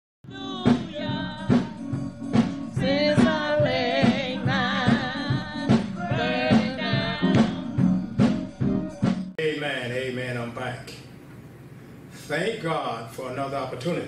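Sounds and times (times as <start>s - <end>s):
person singing: 0.2s - 9.1s
drum beat and bass: 0.3s - 9.4s.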